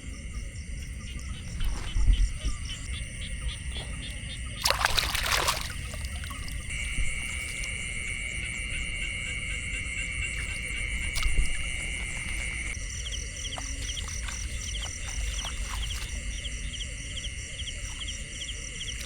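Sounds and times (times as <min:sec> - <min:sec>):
water splash: 0:04.6 - 0:08.1, 0:10.3 - 0:12.8, 0:13.6 - 0:16.3.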